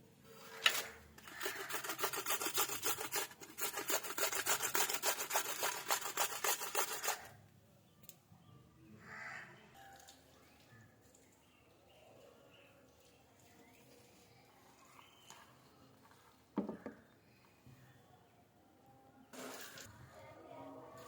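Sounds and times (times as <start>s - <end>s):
rapid rhythmic rasping strokes: 1.2s - 7.3s.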